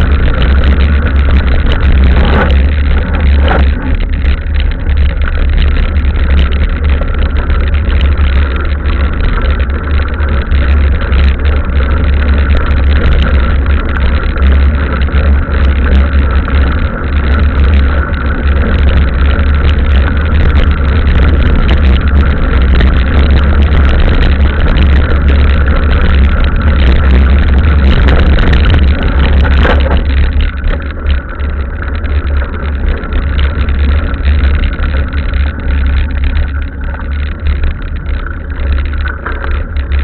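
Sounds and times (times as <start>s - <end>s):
bike clicks and knocks: 0.0s - 40.0s
bike tyres rolling on trail: 0.0s - 40.0s
wind rumble on microphone: 0.0s - 40.0s.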